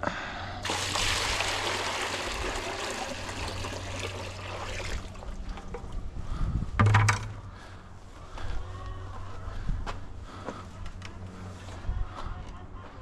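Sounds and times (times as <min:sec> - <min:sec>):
water pouring and trickling: 0:00.6 - 0:06.0
short knock: 0:06.8 - 0:07.4.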